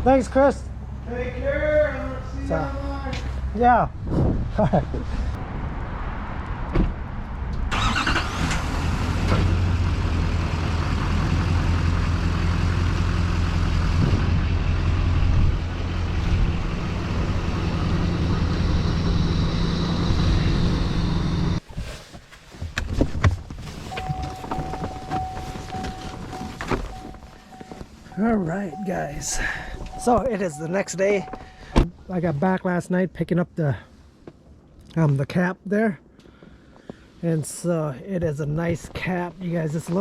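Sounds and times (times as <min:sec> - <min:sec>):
truck engine hum: 0:00.0 - 0:03.6, 0:07.7 - 0:21.6, 0:23.8 - 0:32.6
wind and road noise: 0:00.0 - 0:40.0.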